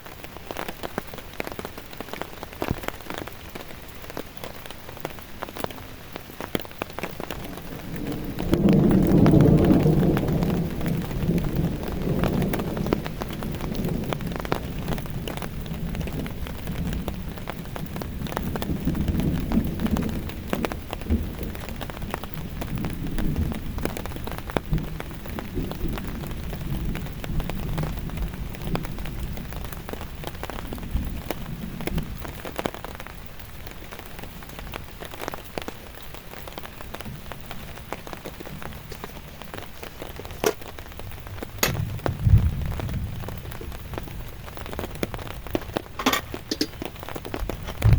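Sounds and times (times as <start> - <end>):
heavy rain pattering: 0.0 - 47.9
low rumble: 44.8 - 47.9
sharp knocks: 45.6 - 46.9.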